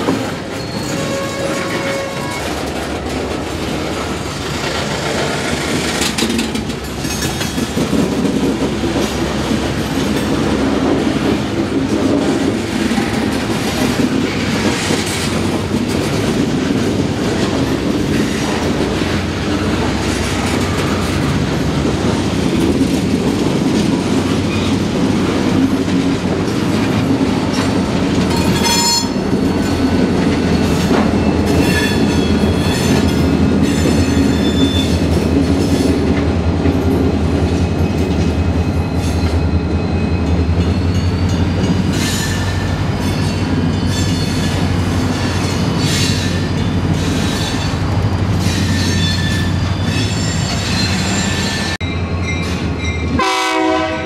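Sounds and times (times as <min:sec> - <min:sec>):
freight train wheels clicking: 0:00.0 - 0:53.2
diesel locomotive: 0:00.0 - 0:54.0
metallic wheel squeal: 0:00.5 - 0:02.4, 0:28.3 - 0:29.9, 0:33.6 - 0:35.0, 0:38.7 - 0:53.1.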